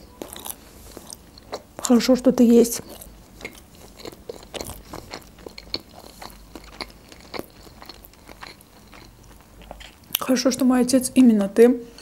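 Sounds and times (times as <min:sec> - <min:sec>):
close chewing with sticky clicks: 0:00.2 - 0:02.0, 0:02.6 - 0:10.3.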